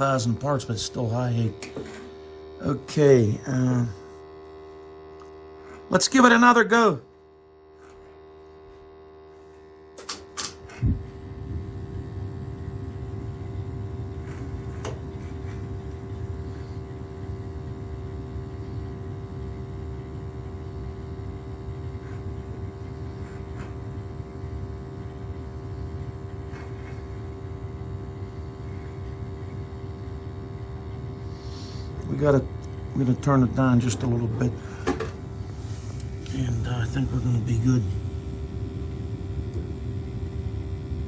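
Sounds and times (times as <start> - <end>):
constant hum: 0.0 - 41.0
burner firing with steady rumble: 10.8 - 31.2.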